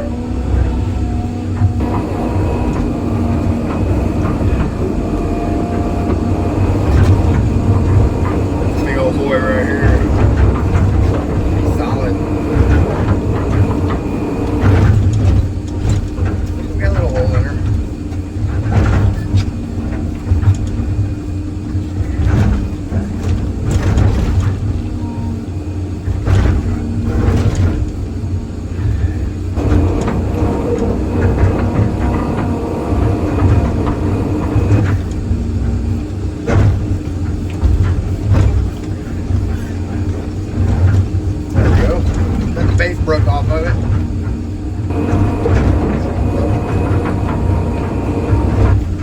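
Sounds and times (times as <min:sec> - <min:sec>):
excavator diesel engine rumbling: 0:00.0 - 0:49.0.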